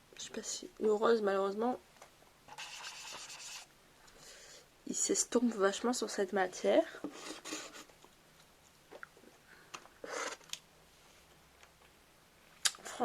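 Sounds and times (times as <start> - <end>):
marker scratchy rub: 2.5 - 3.7, 7.0 - 7.9.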